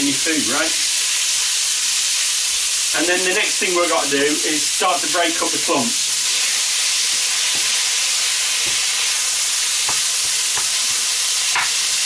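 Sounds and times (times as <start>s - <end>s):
meat sizzling in a frying pan: 0.0s - 12.0s
spatula scraping and tapping pan: 7.4s - 7.8s, 8.6s - 9.2s, 9.8s - 11.8s.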